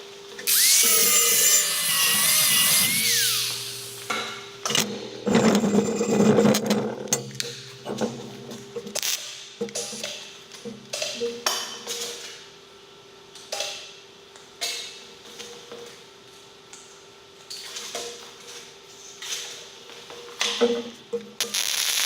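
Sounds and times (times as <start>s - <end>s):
steady hum: 0.4s - 6.2s.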